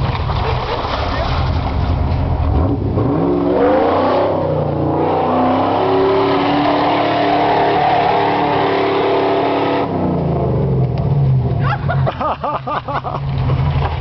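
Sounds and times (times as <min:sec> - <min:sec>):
engine revving hard: 0:02.6 - 0:10.5.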